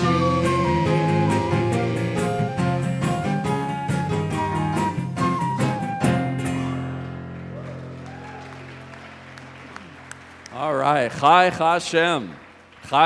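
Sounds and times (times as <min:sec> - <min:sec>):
band playing worship song: 0:00.0 - 0:06.7.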